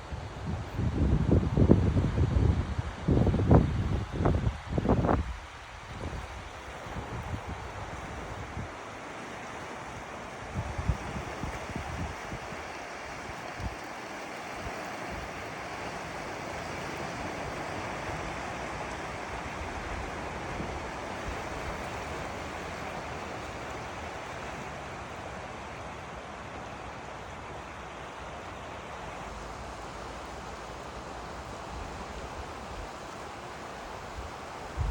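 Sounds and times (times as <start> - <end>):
wind rumble on microphone: 0.0 - 8.8, 10.5 - 15.6, 34.0 - 34.9
waves washing on stony shore: 0.0 - 34.9.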